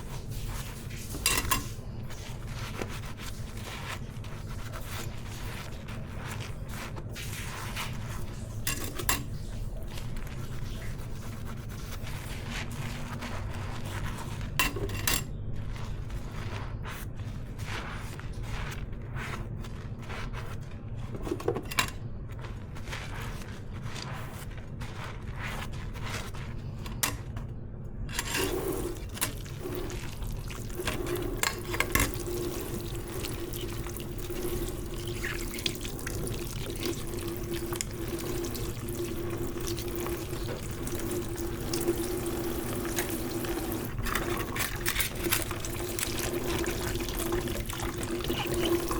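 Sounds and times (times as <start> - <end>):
dishes clinking: 1.2 - 1.8, 14.6 - 15.3
tap water running into sink: 28.2 - 48.9.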